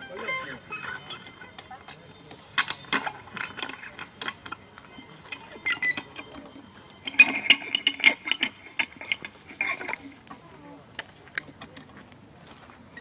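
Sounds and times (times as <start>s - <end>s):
rattling clicks and scrapes: 0.8s - 10.2s.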